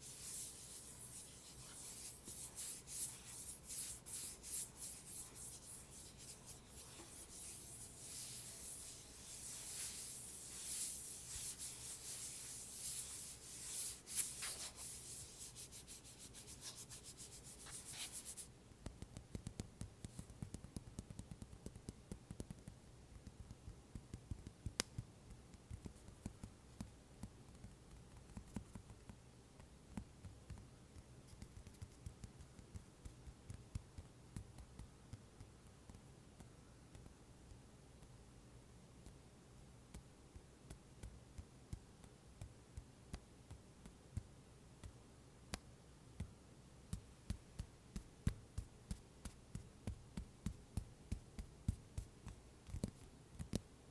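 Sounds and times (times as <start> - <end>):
scratching and rubbing on cover: 0.0 - 18.5.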